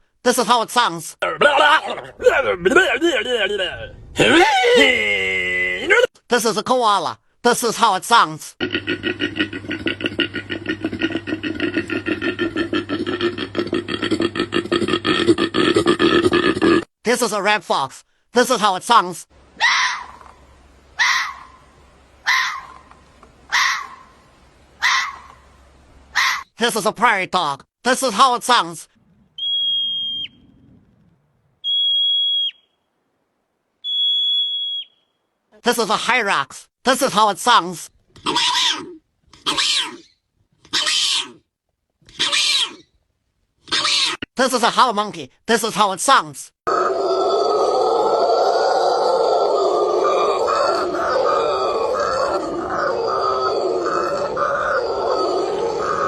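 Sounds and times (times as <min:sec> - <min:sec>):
koala bellowing: 0:19.5 - 0:24.2, 0:24.8 - 0:26.5, 0:46.7 - 0:56.0
prairie dog whistle call: 0:29.4 - 0:30.5, 0:31.6 - 0:32.8, 0:33.8 - 0:35.1.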